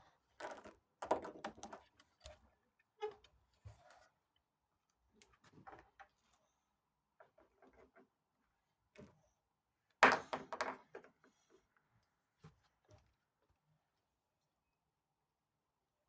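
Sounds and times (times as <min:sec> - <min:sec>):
plastic toys knocking on hard surface: 0:00.4 - 0:01.8, 0:10.0 - 0:11.1.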